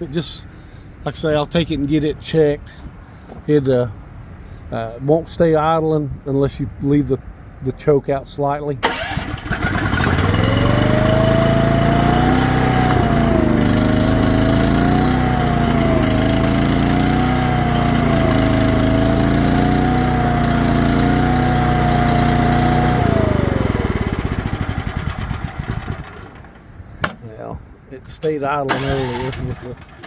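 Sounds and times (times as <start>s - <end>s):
small gasoline engine surging: 8.8s - 26.6s, 28.7s - 30.0s.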